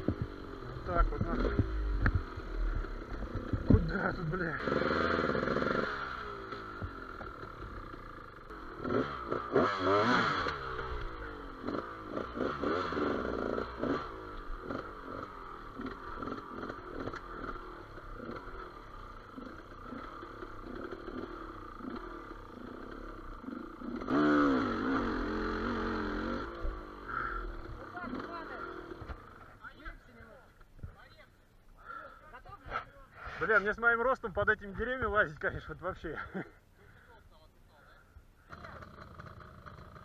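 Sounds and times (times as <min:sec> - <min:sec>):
motorcycle engine revving: 0:00.0 - 0:30.3, 0:38.5 - 0:40.0.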